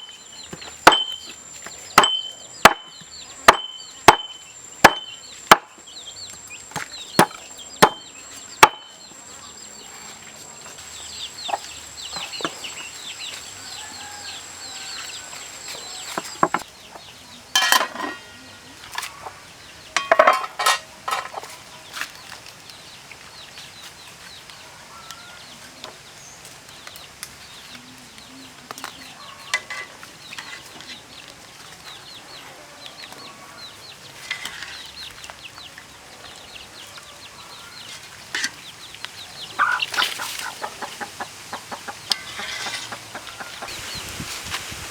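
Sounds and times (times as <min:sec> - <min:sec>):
chicks peeping: 0:00.0 - 0:17.5, 0:21.4 - 0:44.6
chickens clucking: 0:06.2 - 0:21.8, 0:27.3 - 0:44.3
chopping knocks: 0:06.8 - 0:08.0.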